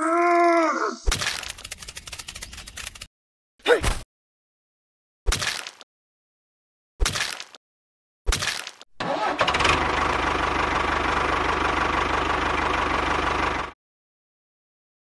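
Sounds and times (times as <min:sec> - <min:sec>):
engine running: 0:09.0 - 0:13.8.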